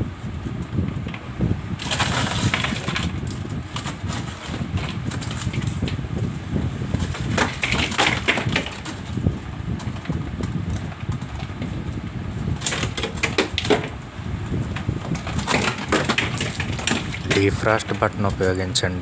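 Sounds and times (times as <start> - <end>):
ice crunching and knocking: 1.8 - 6.0, 7.0 - 11.8, 12.5 - 14.0, 14.7 - 18.3.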